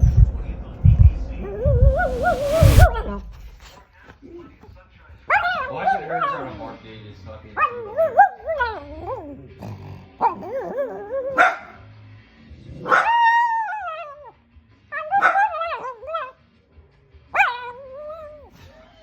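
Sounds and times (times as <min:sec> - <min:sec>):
small dog yipping and howling: 0:07.6 - 0:09.2, 0:10.2 - 0:11.7, 0:12.8 - 0:14.3, 0:15.0 - 0:16.4, 0:17.4 - 0:18.5.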